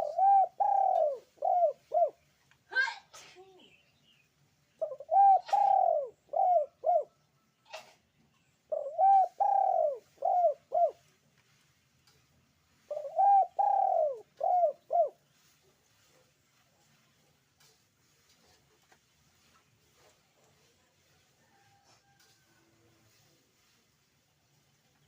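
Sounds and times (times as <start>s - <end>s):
dove cooing: 0.0s - 2.2s, 4.8s - 7.2s, 8.7s - 11.0s, 12.9s - 15.2s.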